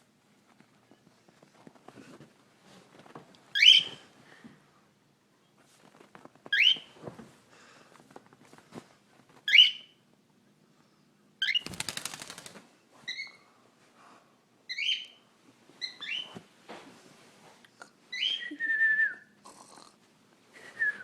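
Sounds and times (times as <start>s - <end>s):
pet bird chirping: 3.6s - 4.0s, 6.5s - 6.9s, 9.5s - 10.0s, 11.4s - 11.8s, 14.7s - 15.2s, 15.8s - 16.3s
bird rattling trill: 11.4s - 12.5s.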